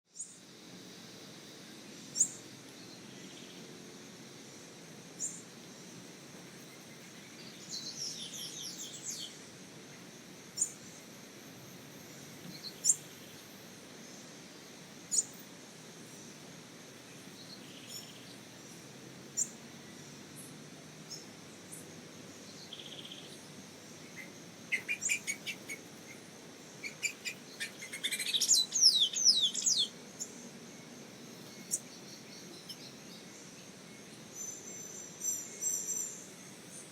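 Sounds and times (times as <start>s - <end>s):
oriole calling: 24.2s - 26.2s, 26.8s - 29.9s.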